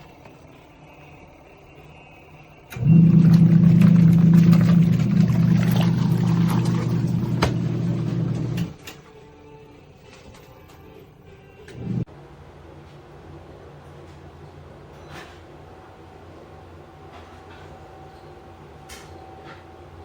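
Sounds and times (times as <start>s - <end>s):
washing machine motor humming: 2.7s - 8.8s, 11.7s - 12.1s.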